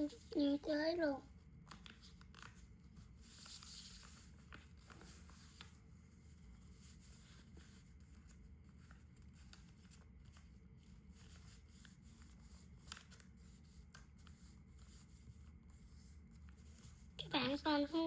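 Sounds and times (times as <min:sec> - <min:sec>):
paper rustling and creasing: 0:00.0 - 0:17.1
low room hum: 0:00.0 - 0:18.0.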